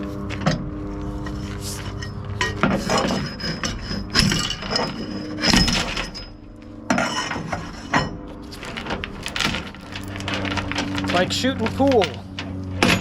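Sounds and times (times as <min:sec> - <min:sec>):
engine hum: 0:00.0 - 0:13.0
chain clinking and rattling: 0:01.3 - 0:06.5, 0:08.4 - 0:13.0.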